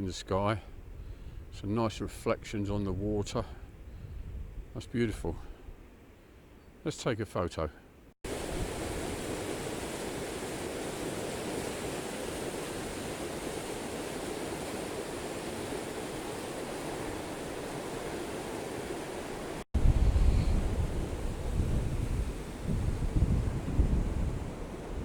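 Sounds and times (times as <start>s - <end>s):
wind buffeting microphone: 0.7s - 5.8s, 8.3s - 25.0s
water rushing: 8.3s - 25.0s.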